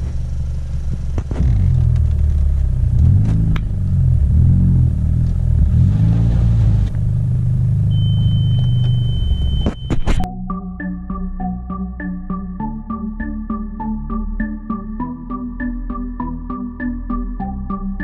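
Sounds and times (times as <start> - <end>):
car engine from inside cabin: 0.0 - 10.3
steady high beep: 7.9 - 10.3.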